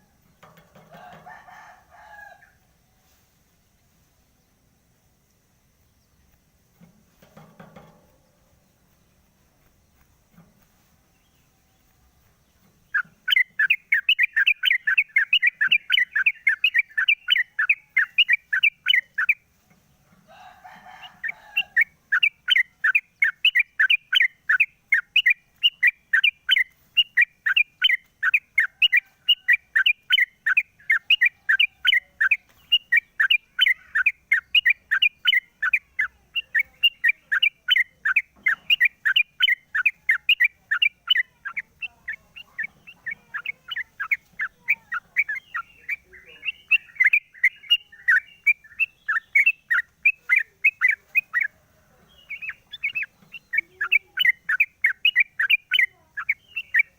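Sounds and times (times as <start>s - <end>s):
bird chirping rapidly: 11.1s - 19.5s, 20.6s - 56.9s.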